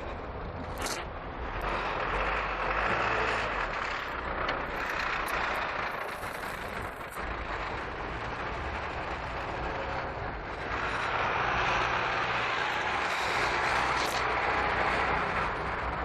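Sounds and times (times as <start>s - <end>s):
road vehicle rumble: 0.0s - 16.0s.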